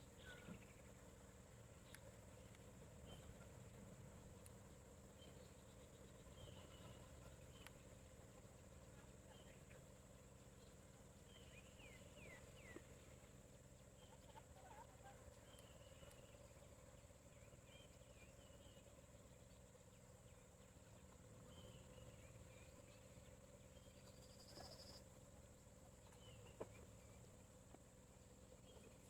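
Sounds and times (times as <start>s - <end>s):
steady low hum: 0.0s - 29.0s
birdsong chirps and whistles: 4.4s - 8.1s, 10.4s - 25.2s.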